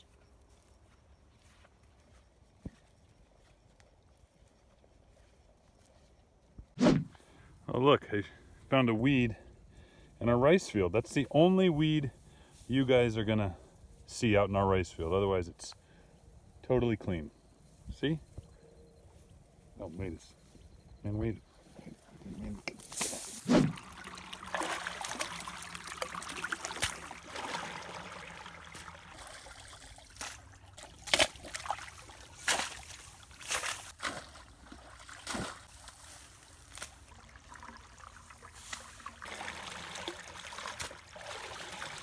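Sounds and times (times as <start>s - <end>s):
water sloshing and trickling: 21.5s - 42.0s
sudden water splashes: 22.8s - 42.0s.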